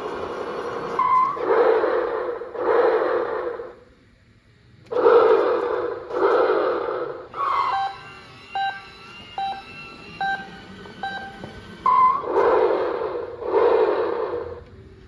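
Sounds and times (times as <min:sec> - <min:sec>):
toy truck revving sound effect: 0:04.9 - 0:14.6
rising electronic chirp: 0:07.3 - 0:14.5
electronic beeping tones: 0:07.4 - 0:12.4.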